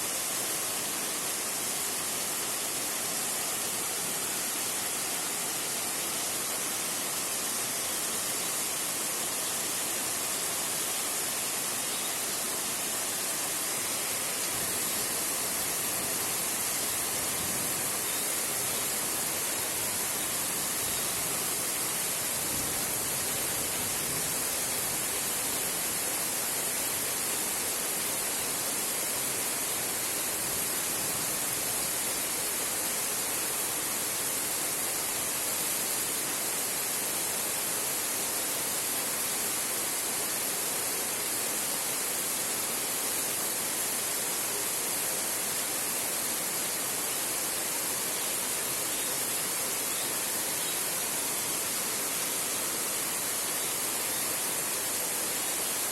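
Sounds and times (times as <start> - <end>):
heavy rain on a tin roof: 22.1 - 26.0.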